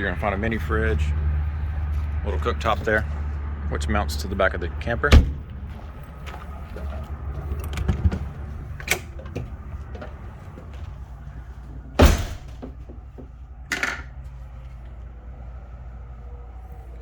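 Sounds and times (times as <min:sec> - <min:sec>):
low steady rumble: 0:00.0 - 0:17.0
door knocks and thumps: 0:12.0 - 0:13.3.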